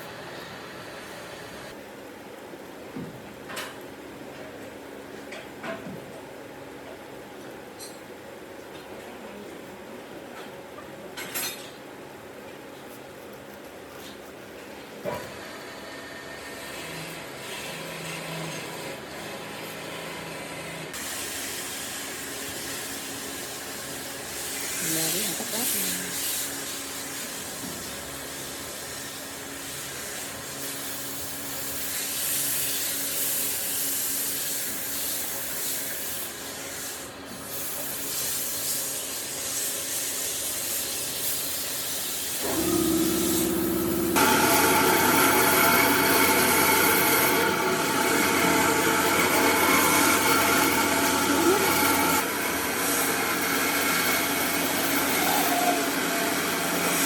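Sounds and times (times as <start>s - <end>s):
power tool humming: 42.4s - 57.0s
wood being sanded: 42.5s - 57.0s.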